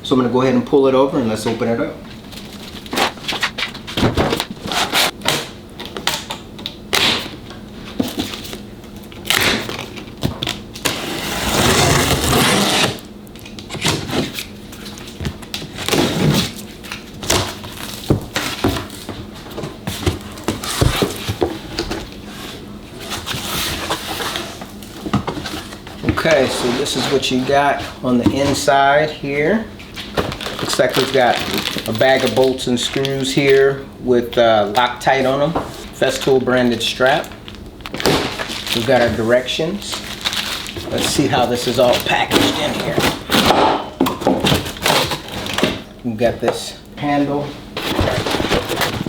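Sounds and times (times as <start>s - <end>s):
rustling scrape: 2.2s - 5.1s, 47.8s - 49.0s
box unpacking knocks and clicks: 2.2s - 6.2s, 17.2s - 22.1s, 47.8s - 49.0s.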